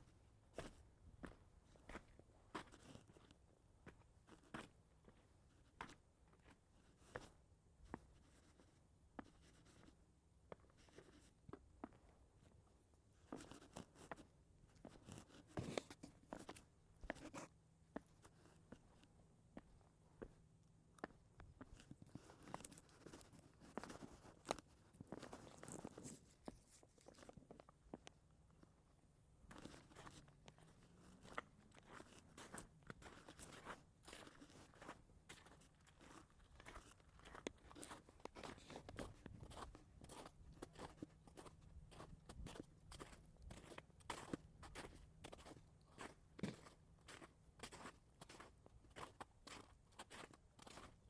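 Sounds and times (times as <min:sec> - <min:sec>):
faint crunching footsteps: 0:21.0 - 0:28.8, 0:29.4 - 0:51.0.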